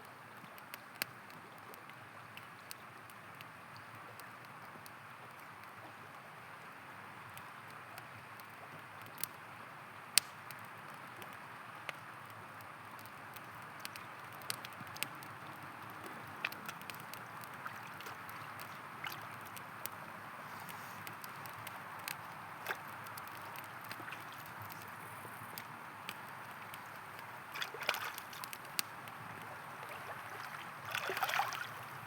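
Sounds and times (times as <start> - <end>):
campfire crackling and popping: 0.0 - 32.0
river flowing: 14.9 - 32.0.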